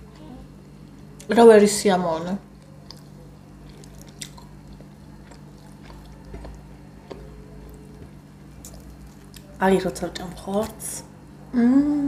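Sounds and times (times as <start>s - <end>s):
chewing: 2.6s - 9.6s.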